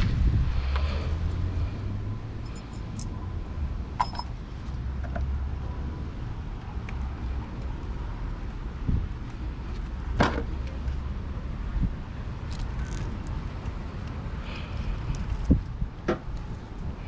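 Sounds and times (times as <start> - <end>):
steady low rumble: 0.0 - 17.0
metal clinks from hand tools: 2.5 - 3.1, 4.0 - 4.3.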